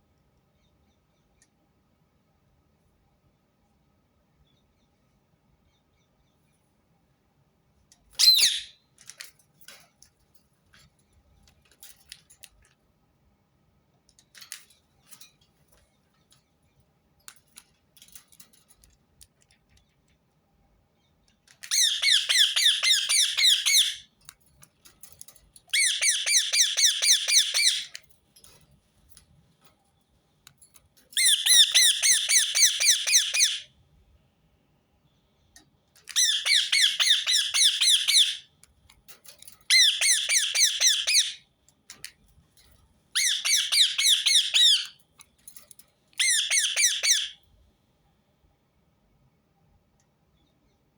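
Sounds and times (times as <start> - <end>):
parakeet squawking and screeching: 8.2 - 8.7, 21.6 - 24.0, 25.7 - 28.0, 31.2 - 33.7, 36.1 - 38.4, 39.7 - 41.4, 43.2 - 44.9, 46.2 - 47.4.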